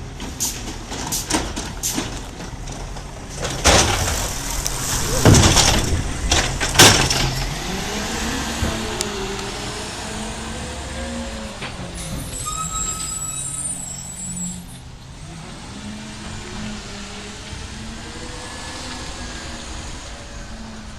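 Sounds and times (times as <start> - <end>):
truck engine revving: 2.1 - 12.2.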